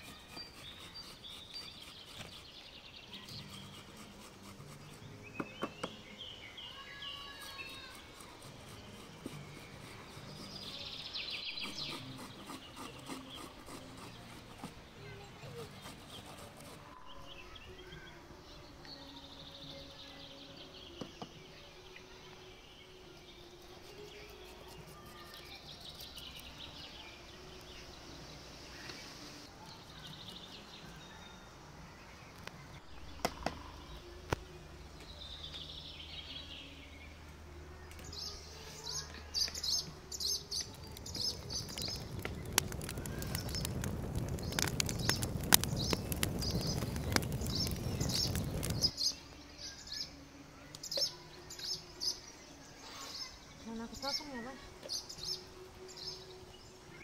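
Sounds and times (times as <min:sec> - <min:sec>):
small birds chirping: 0:00.0 - 0:57.0
rustling crackling noise: 0:40.4 - 0:49.0.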